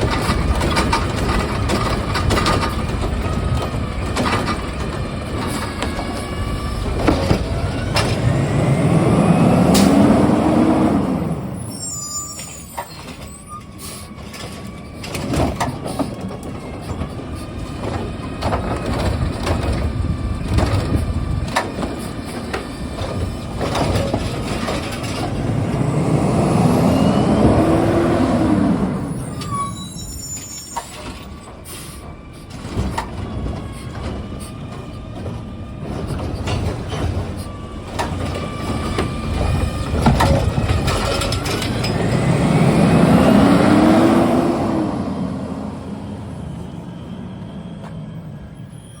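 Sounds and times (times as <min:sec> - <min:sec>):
clatter and sharp knocks: 0:00.0 - 0:06.1
diesel engine revving: 0:00.0 - 0:12.0, 0:14.9 - 0:30.2, 0:31.0 - 0:48.5.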